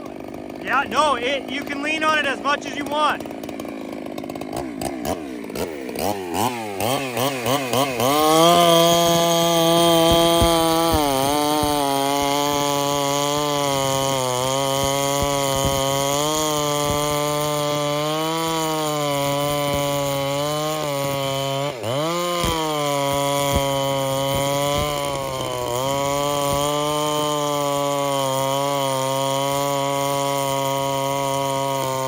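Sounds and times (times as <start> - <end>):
chainsaw cutting through log: 0.0 - 32.0.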